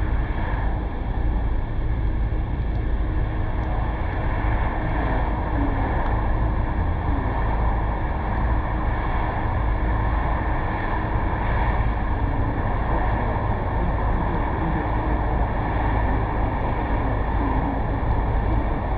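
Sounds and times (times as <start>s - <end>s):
wind on microphone: 0.0s - 18.9s.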